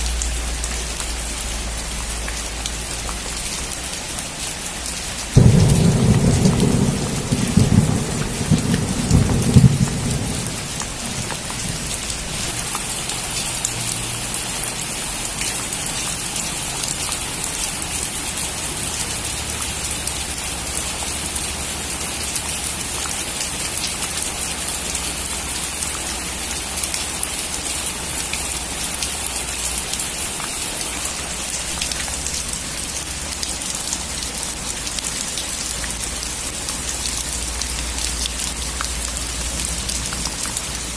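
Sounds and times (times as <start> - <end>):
steady rain: 0.0 - 40.9
thunder rumbling: 5.4 - 12.6.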